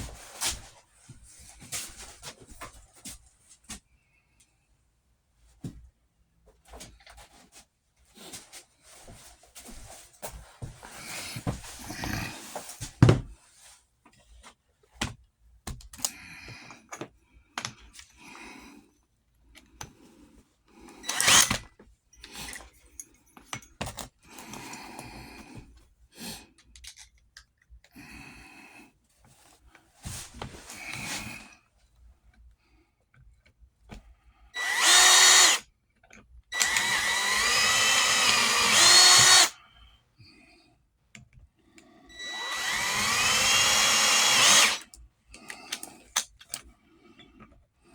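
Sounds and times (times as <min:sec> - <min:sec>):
small tools and parts handled: 0:21.0 - 0:25.1, 0:26.6 - 0:27.8, 0:42.2 - 0:46.7
electric drill running: 0:21.1 - 0:21.6, 0:34.6 - 0:35.6, 0:36.5 - 0:39.6, 0:42.1 - 0:44.9.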